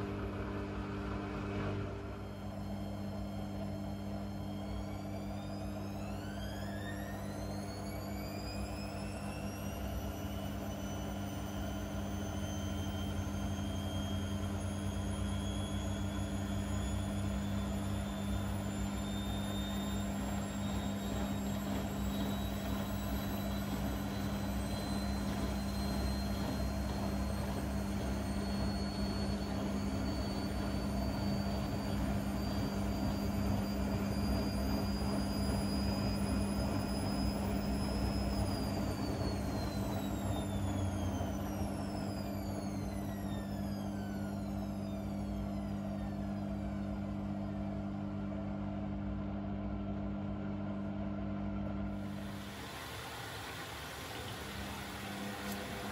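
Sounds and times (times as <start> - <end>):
low hum: 0.0 - 52.6
washing machine motor whine: 0.0 - 55.9.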